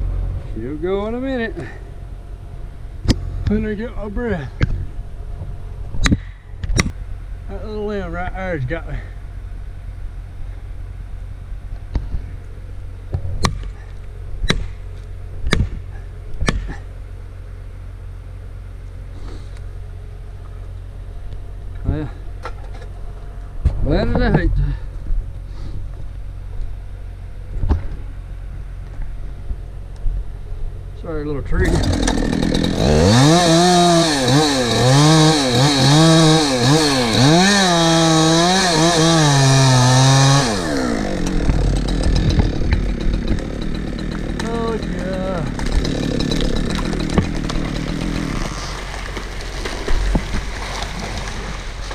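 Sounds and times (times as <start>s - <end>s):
steady engine hum: 0.0s - 51.9s
chainsaw cutting a tree: 31.6s - 51.9s
sharp cracks: 40.5s - 51.9s
rough rustling: 45.5s - 51.9s.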